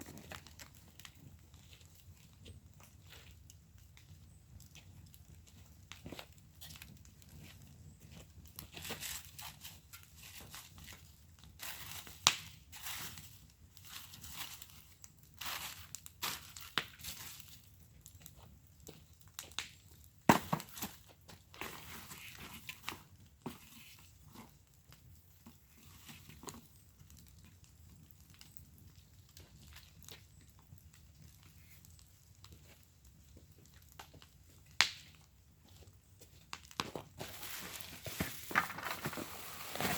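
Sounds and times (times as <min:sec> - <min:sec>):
wood fire crackling: 0:00.0 - 0:39.9
sharp pops of fire: 0:12.0 - 0:12.7, 0:19.3 - 0:21.0, 0:34.0 - 0:35.3.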